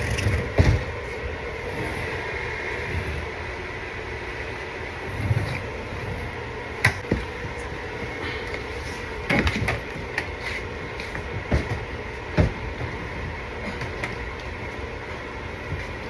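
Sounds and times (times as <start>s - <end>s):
knocks and clatter of installation work: 0.0s - 1.2s, 6.8s - 16.0s
steady background hum: 0.0s - 16.0s.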